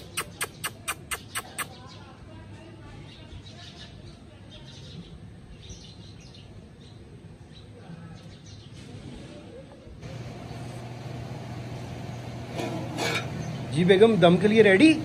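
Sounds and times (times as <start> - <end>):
small birds chirping: 0.0 - 9.1, 10.0 - 12.5, 13.1 - 15.0
steady low hum: 10.0 - 15.0.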